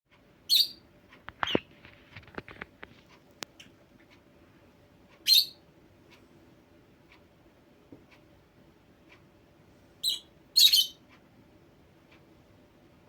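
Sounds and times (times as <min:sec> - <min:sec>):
parrot harsh chirp: 0:00.5 - 0:00.8, 0:05.2 - 0:05.6, 0:10.0 - 0:11.0.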